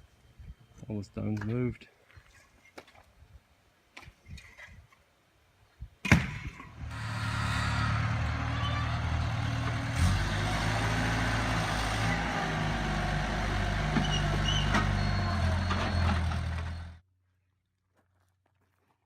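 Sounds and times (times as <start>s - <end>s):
knocks and clanks: 6.1s - 10.8s
heavy diesel engine running: 6.7s - 17.0s.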